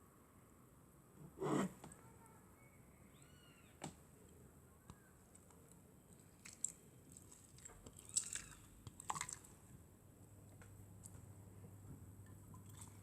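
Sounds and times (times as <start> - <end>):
slime squishing: 5.4 - 9.7.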